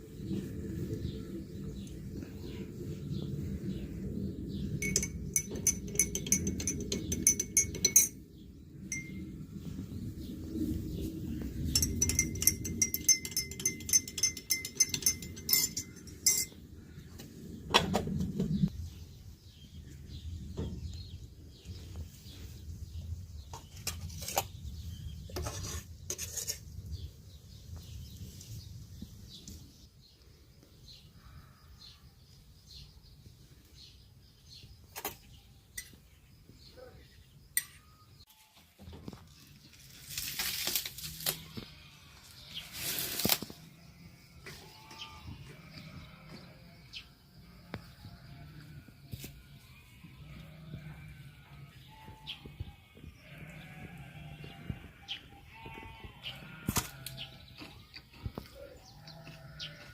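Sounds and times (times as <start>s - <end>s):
dishes and cutlery clinking: 4.8s - 8.2s, 11.7s - 16.6s.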